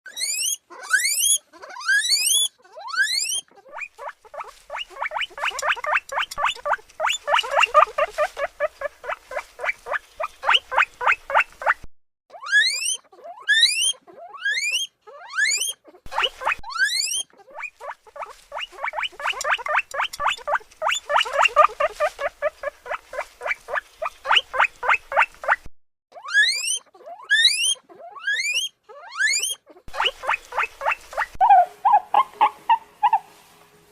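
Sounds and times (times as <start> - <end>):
guinea pig wheeking: 0.1 - 33.3.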